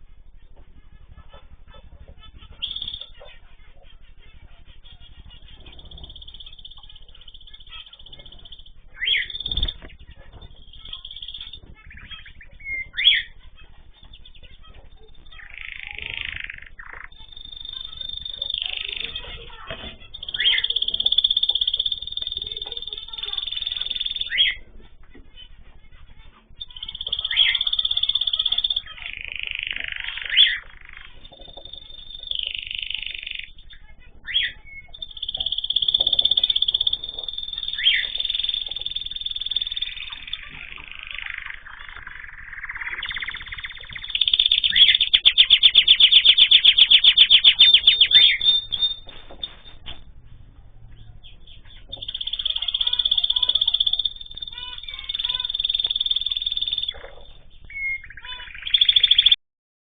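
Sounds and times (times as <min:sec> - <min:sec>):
buzzy bird call: 0:00.0 - 0:50.0, 0:50.6 - 0:59.4
cage birds chirping: 0:00.0 - 0:59.4
bird whistle: 0:01.2 - 0:03.9, 0:04.8 - 0:24.6, 0:26.6 - 0:49.8, 0:51.2 - 0:59.4
loud sharp bird call: 0:26.6 - 0:49.7.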